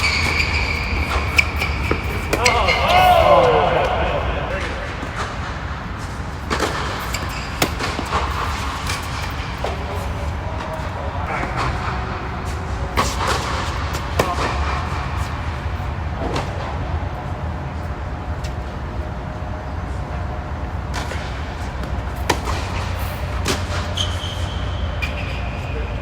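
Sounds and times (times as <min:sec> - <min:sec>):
tennis balls struck by rackets: 0:00.0 - 0:15.5, 0:20.9 - 0:25.3.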